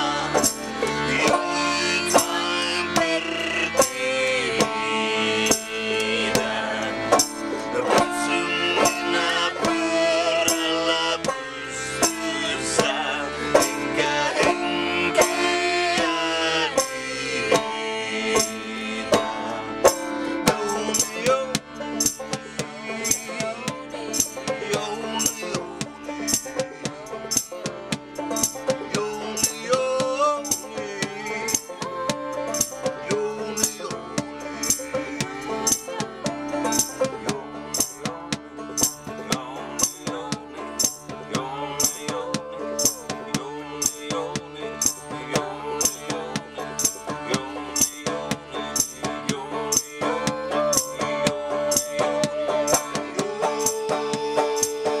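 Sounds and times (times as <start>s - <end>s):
accordion: 0.0s - 55.0s
banjo: 0.0s - 55.0s
rattling percussion beat: 7.2s - 7.5s, 19.2s - 55.0s.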